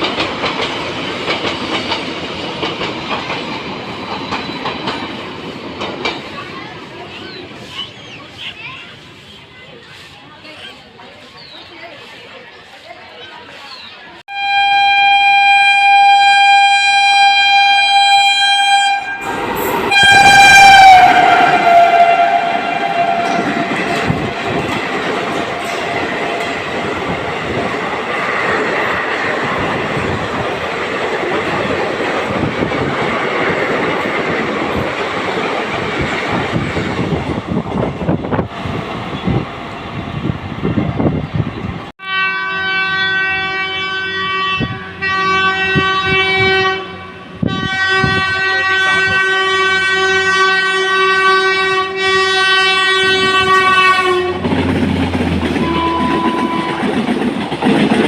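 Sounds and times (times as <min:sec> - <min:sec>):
wheels clattering over rail joints: 0:00.0 - 0:07.8, 0:54.4 - 0:58.0
train rushing by: 0:00.0 - 0:13.9, 0:15.4 - 0:41.9, 0:42.5 - 0:58.0
locomotive horn blast: 0:14.3 - 0:24.2, 0:42.0 - 0:54.6, 0:55.6 - 0:57.0.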